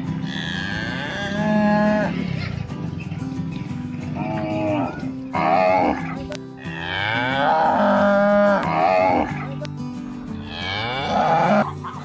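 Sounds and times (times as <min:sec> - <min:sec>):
cattle mooing: 0:00.0 - 0:02.5, 0:04.1 - 0:09.5, 0:10.4 - 0:11.7
background music low notes: 0:00.0 - 0:12.0.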